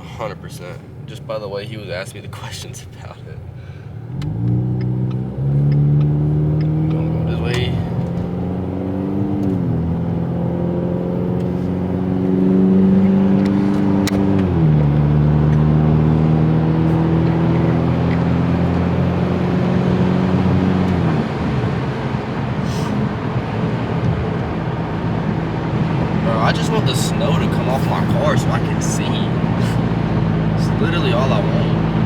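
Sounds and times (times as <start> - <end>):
road noise: 0.0 - 32.0
car engine shifting up: 3.4 - 32.0.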